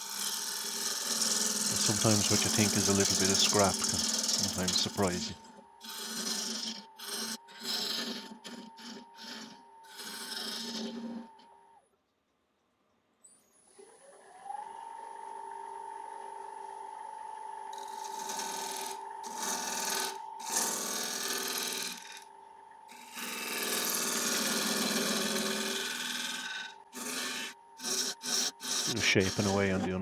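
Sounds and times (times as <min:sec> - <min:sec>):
turning tool cutting wood: 0:00.0 - 0:11.6, 0:17.8 - 0:22.3, 0:22.9 - 0:30.0
wood lathe motor whine: 0:00.0 - 0:11.8, 0:14.1 - 0:30.0.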